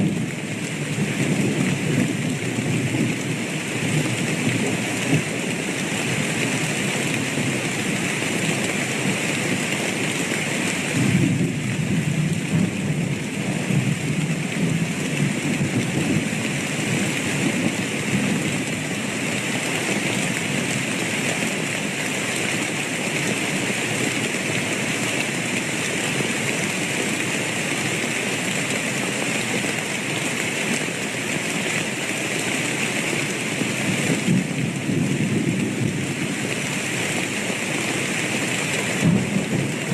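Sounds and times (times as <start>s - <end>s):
heavy rainfall: 0.0s - 39.9s
thunder rumbling: 11.0s - 16.5s, 34.1s - 36.3s, 39.0s - 39.9s.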